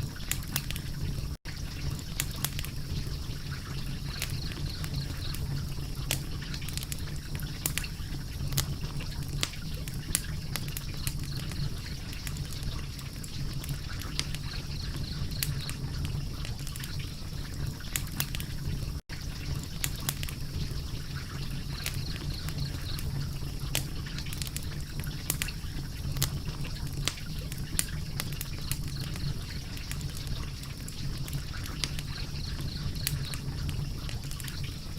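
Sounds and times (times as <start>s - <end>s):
fire crackling: 0.0s - 34.9s
sharp pops and snaps of fire: 0.0s - 34.9s.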